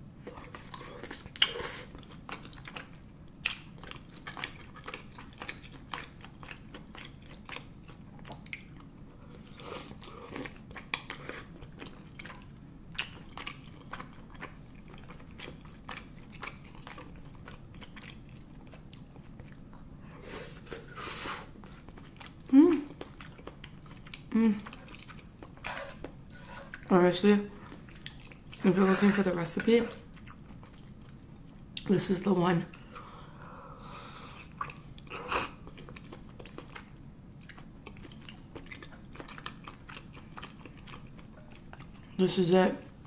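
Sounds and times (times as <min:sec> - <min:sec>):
chewing with wet mouth smacks: 0:00.2 - 0:19.9, 0:21.5 - 0:31.9, 0:34.4 - 0:42.2.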